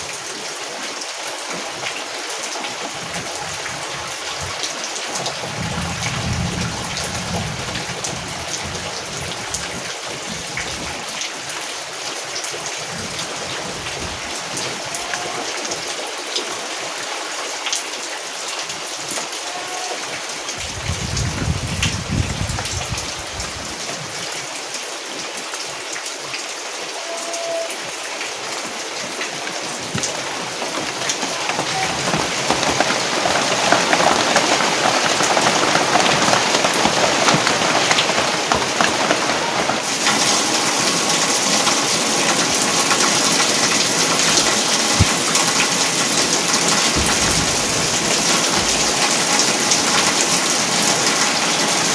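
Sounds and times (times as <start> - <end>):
rain drops ticking on a surface: 0.0 - 51.9
low rumble: 5.4 - 9.3.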